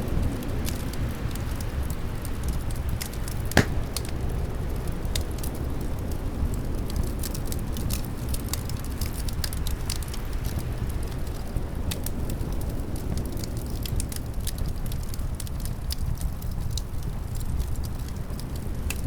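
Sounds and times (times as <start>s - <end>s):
wood fire crackling and popping: 3.6s - 4.8s.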